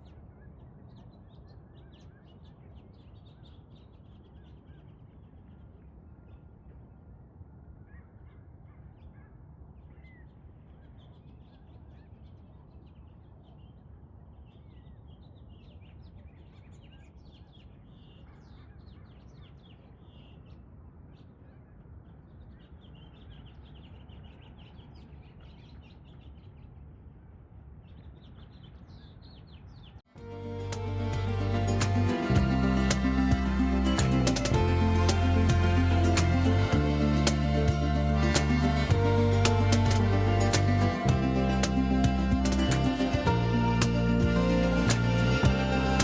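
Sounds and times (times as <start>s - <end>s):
low steady outdoor rumble: 30.2s - 46.0s.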